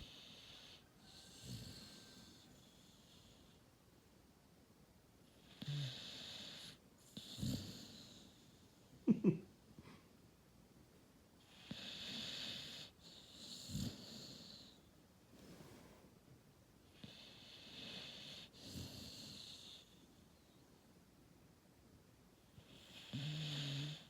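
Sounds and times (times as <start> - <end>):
puppy snoring: 0.0 - 3.6, 5.3 - 8.7, 11.4 - 14.9, 16.9 - 20.2, 22.5 - 24.0.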